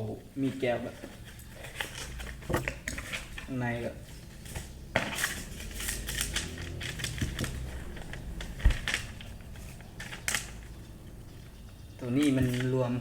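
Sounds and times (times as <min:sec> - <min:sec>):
packaging rustling and clicking: 0:01.0 - 0:03.5, 0:04.2 - 0:10.9, 0:11.5 - 0:13.0.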